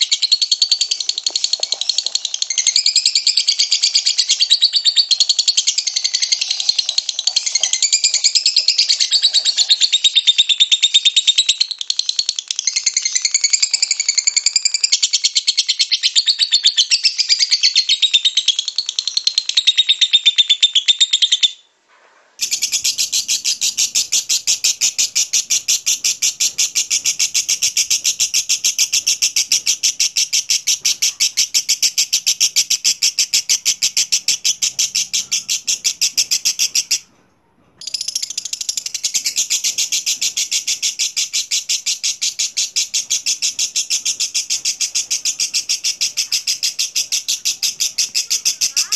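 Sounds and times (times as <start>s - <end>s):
lovebird chirping and trilling: 0.0s - 21.6s, 22.4s - 37.1s, 37.8s - 48.9s.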